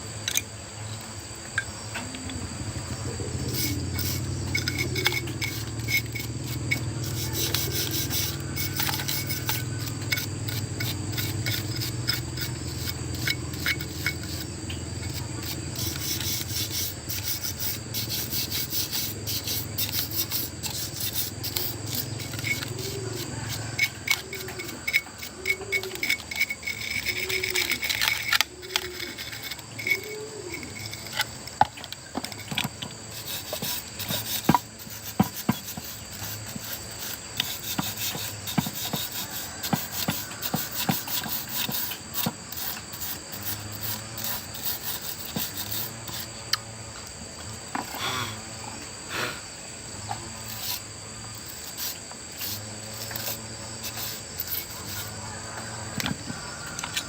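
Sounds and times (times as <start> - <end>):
steady high whine: 0.0 - 35.6
scraping and rubbing: 2.7 - 46.6, 50.0 - 57.0.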